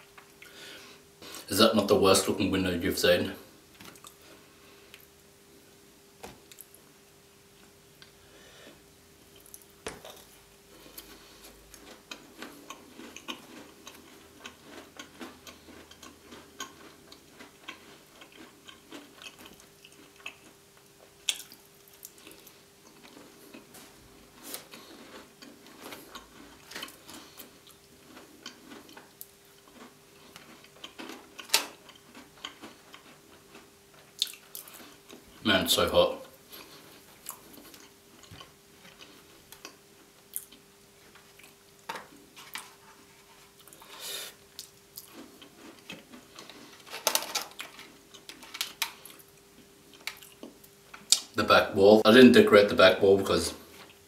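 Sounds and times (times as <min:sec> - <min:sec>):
faint steady hum: 0:00.0 - 0:54.0
close chewing with soft crunches: 0:03.8 - 0:05.2, 0:09.3 - 0:35.5, 0:36.1 - 0:51.4.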